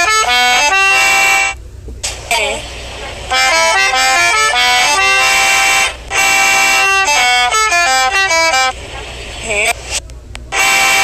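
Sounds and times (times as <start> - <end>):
accordion playing quick melody: 0.0 - 1.6, 2.3 - 8.8, 10.5 - 11.0.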